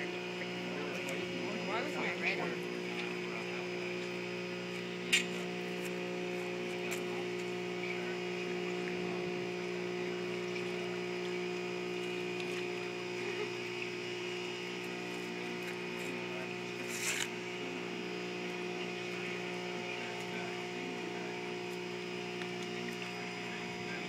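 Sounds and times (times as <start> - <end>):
boat engine humming: 0.0 - 24.0.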